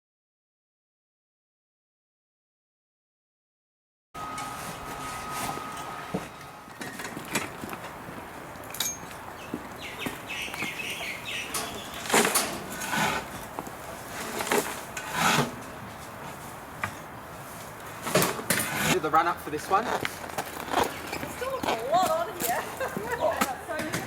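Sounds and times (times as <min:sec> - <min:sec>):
scrapes and rustles: 0:11.5 - 0:19.0.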